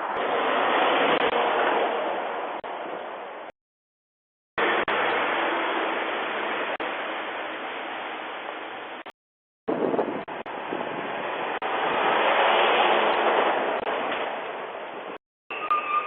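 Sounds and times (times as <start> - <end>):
vehicle passing: 10.6 - 14.8.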